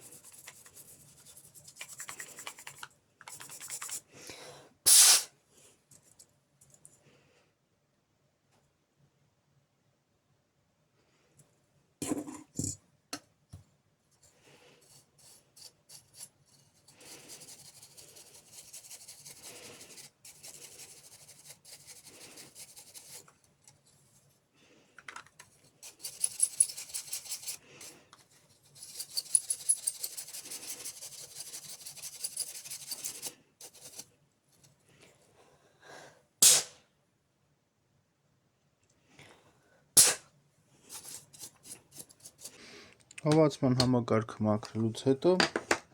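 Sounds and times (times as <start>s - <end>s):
rapid scrubbing strokes: 14.8s - 23.3s.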